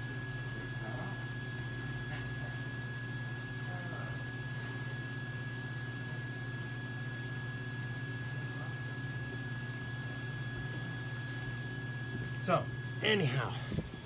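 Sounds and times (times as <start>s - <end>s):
electrical hum: 11.3s - 14.0s.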